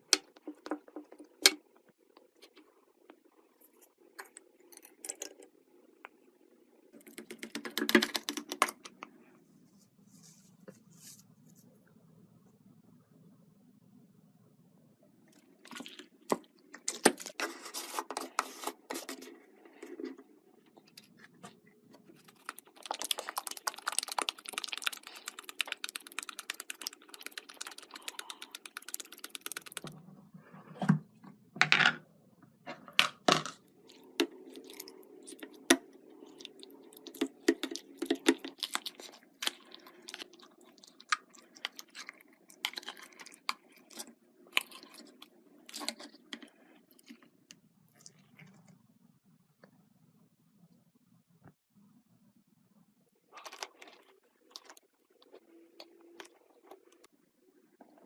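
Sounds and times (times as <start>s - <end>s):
slime crackling and popping: 22.1s - 29.9s.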